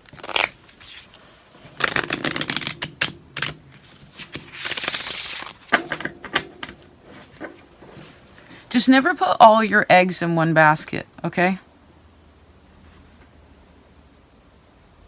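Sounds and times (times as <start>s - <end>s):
cards shuffling: 0.0s - 8.6s.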